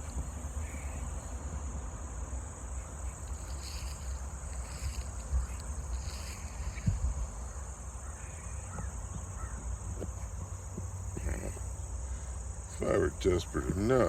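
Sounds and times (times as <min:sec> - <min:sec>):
low wind rumble: 0:00.0 - 0:13.0
insects droning: 0:00.0 - 0:14.0
faint animal calls: 0:07.4 - 0:09.7.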